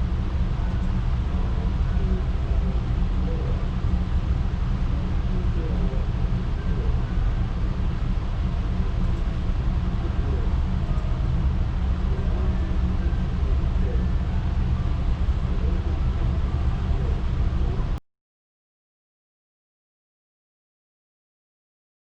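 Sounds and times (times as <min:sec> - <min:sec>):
ferry engine rumble: 0:00.0 - 0:18.0.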